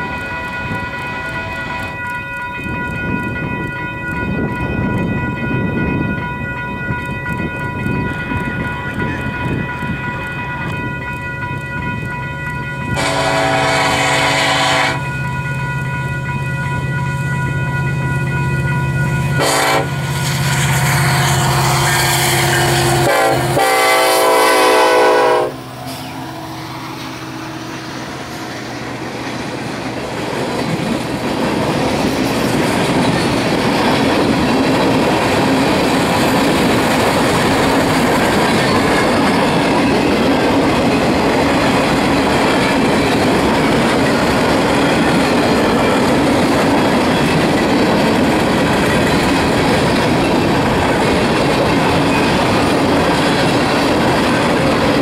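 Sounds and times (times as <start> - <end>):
diesel locomotive engine rumble: 0.0 - 55.0
train horn blasts: 12.9 - 15.2, 19.3 - 29.1
wheels clicking over rail joints: 28.6 - 55.0.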